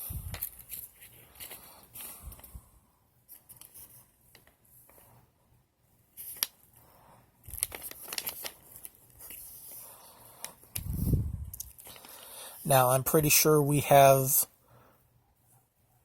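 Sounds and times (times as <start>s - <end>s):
handling rustling: 0.1s - 2.6s, 7.4s - 12.3s.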